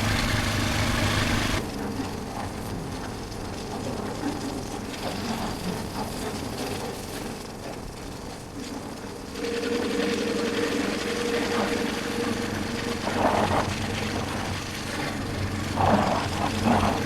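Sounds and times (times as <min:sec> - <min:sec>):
motorcycle engine running: 0:00.0 - 0:01.6.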